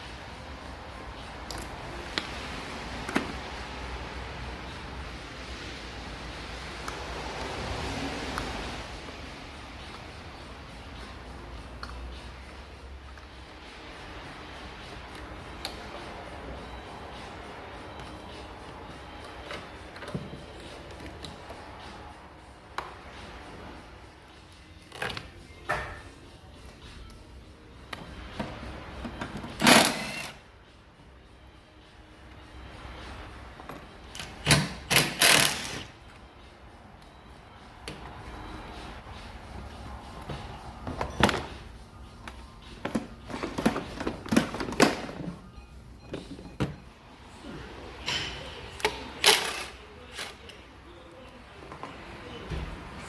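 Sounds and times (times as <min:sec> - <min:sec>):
hand tools and metal parts clanking: 0:28.4 - 0:30.4.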